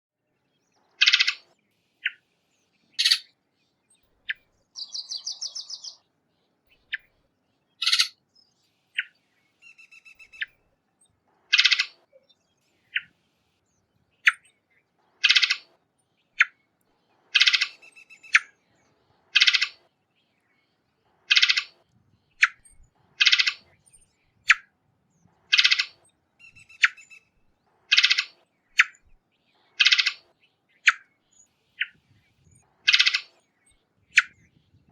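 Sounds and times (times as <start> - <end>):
buzzy bird chatter: 0.9 - 2.2, 2.9 - 3.3, 4.3 - 6.0, 7.8 - 8.2, 11.4 - 12.1, 14.2 - 20.0, 20.8 - 24.7, 25.3 - 34.9
bird harsh call notes: 3.0 - 3.3, 7.8 - 8.2.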